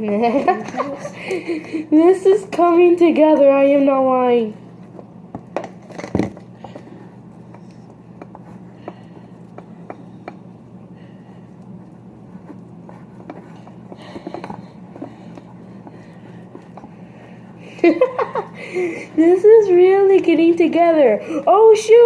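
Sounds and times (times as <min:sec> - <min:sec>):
steady low hum: 0:00.0 - 0:22.0
sticks clicking and scraping bowl: 0:04.6 - 0:17.6.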